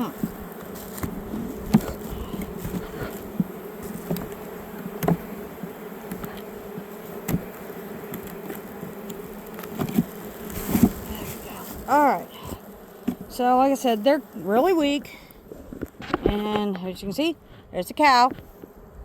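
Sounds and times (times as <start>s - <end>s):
hive frames knocking: 0.0s - 15.0s
honeybees buzzing: 0.0s - 19.0s.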